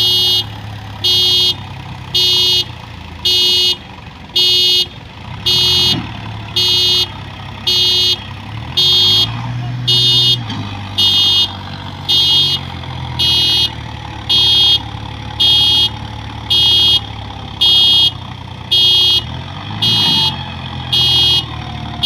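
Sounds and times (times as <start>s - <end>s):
diesel engine running: 0.0s - 22.0s
electronic warning beeps: 8.8s - 11.5s, 13.2s - 17.0s, 17.6s - 21.5s.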